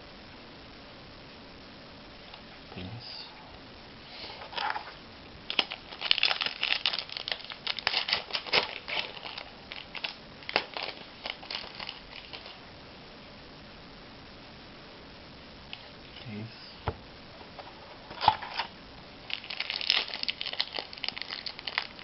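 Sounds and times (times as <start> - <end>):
wrapper tearing and crinkling: 5.5 - 12.6, 18.1 - 18.7, 19.3 - 22.0.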